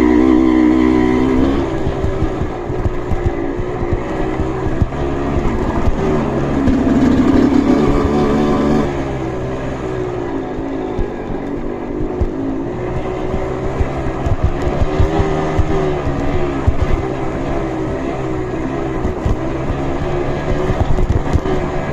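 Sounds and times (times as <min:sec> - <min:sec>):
motorcycle engine revving: 0:00.0 - 0:21.9
knocks and clatter: 0:01.4 - 0:09.0, 0:10.9 - 0:17.6, 0:18.8 - 0:21.9.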